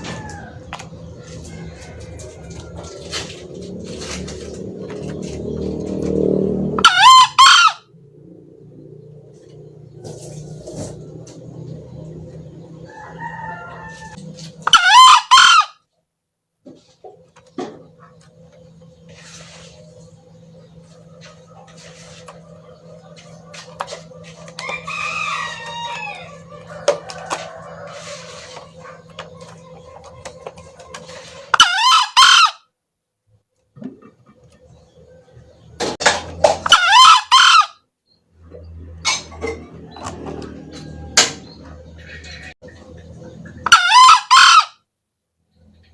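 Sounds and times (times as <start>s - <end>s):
junglefowl crowing: 0.0s - 4.6s, 6.6s - 8.0s, 12.8s - 15.8s, 23.5s - 32.7s, 36.4s - 37.8s, 43.6s - 44.8s.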